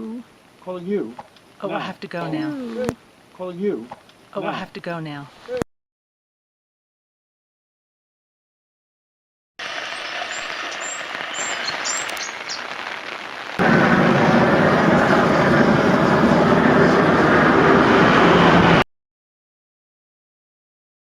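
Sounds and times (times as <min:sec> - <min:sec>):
outdoor hiss: 0:00.0 - 0:05.6, 0:09.6 - 0:16.9
high bird chirps: 0:09.9 - 0:12.7.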